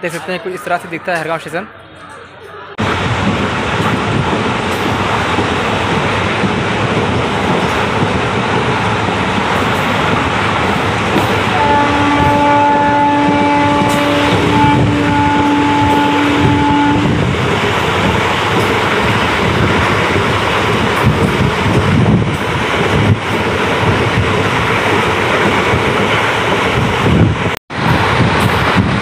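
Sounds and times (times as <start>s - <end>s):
train wheel and track noise: 0.0s - 29.0s
wind buffeting microphone: 2.7s - 29.0s
train horn long note: 11.5s - 17.2s.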